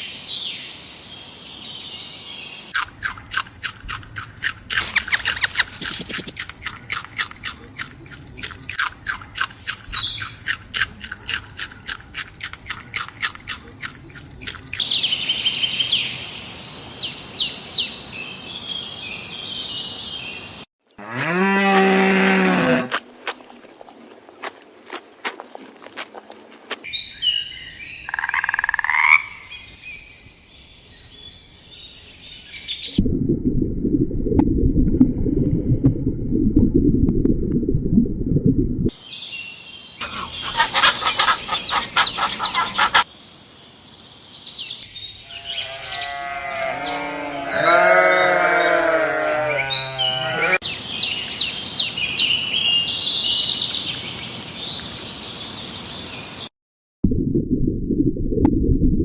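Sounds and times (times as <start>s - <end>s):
high bird chirps: 4.8s - 6.3s, 9.6s - 10.5s
pitched croaking calls: 28.1s - 29.5s, 40.0s - 43.1s, 45.3s - 50.6s
low rumbling noise: 33.0s - 38.9s, 57.0s - 59.0s
dense rapid animal calls: 40.0s - 43.1s.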